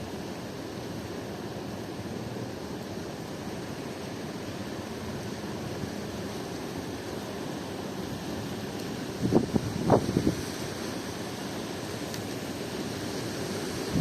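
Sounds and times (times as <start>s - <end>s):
surf at the shore: 0.0s - 14.0s
strong wind: 5.1s - 14.0s.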